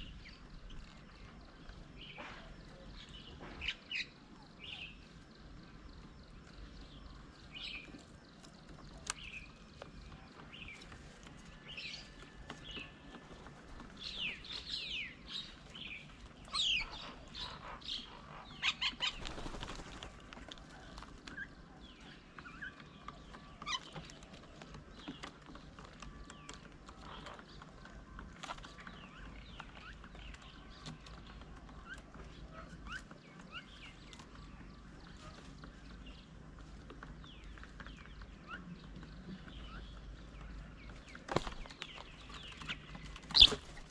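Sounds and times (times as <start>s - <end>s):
birds chirping and whistling: 13.8s - 19.8s, 37.2s - 43.9s.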